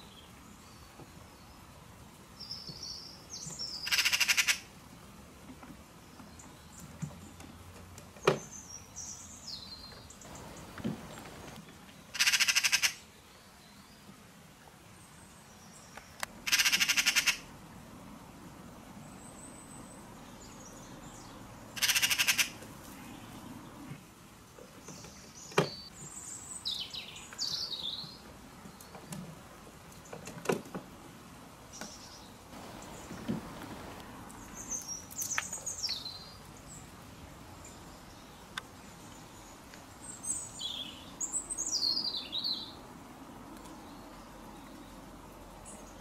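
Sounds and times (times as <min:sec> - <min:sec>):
harsh rattling bird calls: 0:02.4 - 0:04.7, 0:08.2 - 0:13.1, 0:16.4 - 0:17.5, 0:19.2 - 0:23.8.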